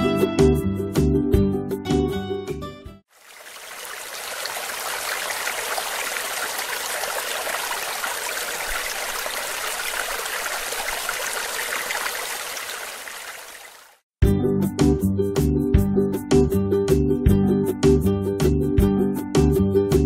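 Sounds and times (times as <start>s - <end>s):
music: 0.0s - 3.0s, 14.2s - 20.0s
fast-flowing stream water: 3.1s - 14.0s.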